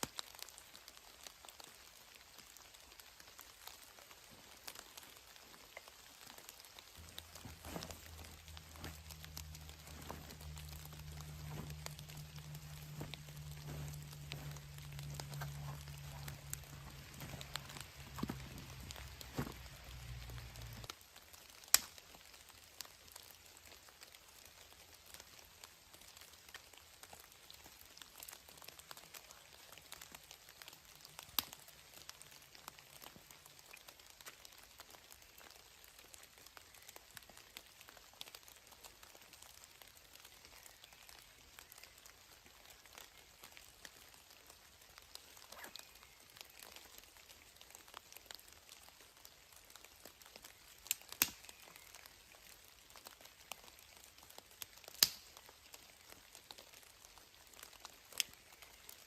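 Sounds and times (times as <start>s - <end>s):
raindrops pattering: 0.0s - 59.0s.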